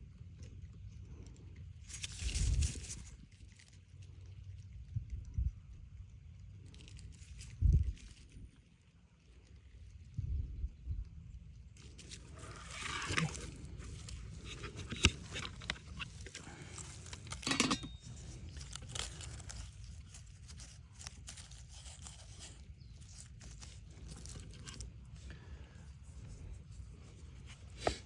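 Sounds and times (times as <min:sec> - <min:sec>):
crinkling and clicking handling noises: 0:00.4 - 0:04.6, 0:11.8 - 0:28.0.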